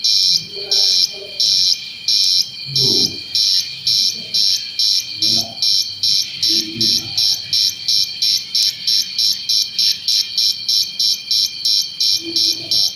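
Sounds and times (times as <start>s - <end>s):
electronic cricket chirping: 0.0s - 12.9s
steady high tone: 2.7s - 4.4s.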